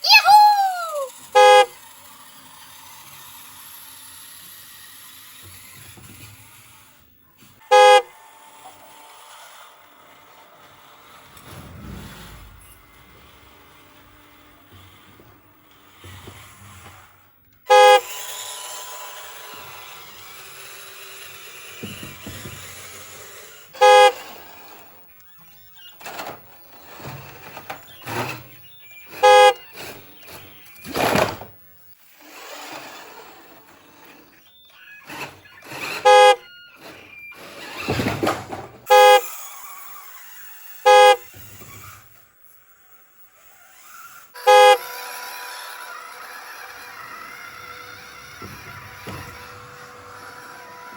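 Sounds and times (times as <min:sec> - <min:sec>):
noise bursts from toys: 0:00.0 - 0:01.8, 0:07.7 - 0:08.0, 0:17.7 - 0:24.8, 0:28.0 - 0:31.2, 0:32.0 - 0:38.2, 0:38.9 - 0:50.9
toy truck electronic horn toots: 0:00.1 - 0:02.0, 0:07.6 - 0:08.2, 0:17.7 - 0:18.4, 0:23.8 - 0:24.5, 0:29.1 - 0:30.5, 0:35.0 - 0:37.6, 0:38.9 - 0:39.6, 0:40.8 - 0:42.1, 0:43.5 - 0:45.8.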